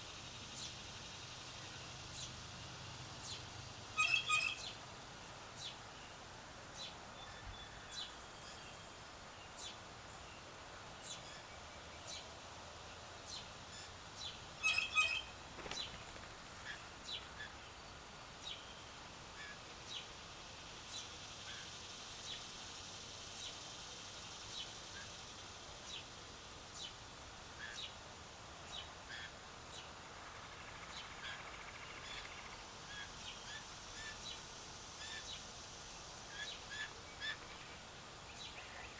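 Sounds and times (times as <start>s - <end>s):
faint outdoor background: 0.0s - 38.9s
bird chirps: 4.0s - 4.8s, 14.6s - 15.3s.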